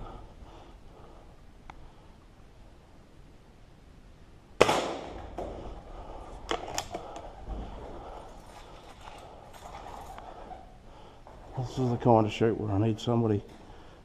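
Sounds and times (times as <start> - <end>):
shotgun shot: 4.6 - 5.4.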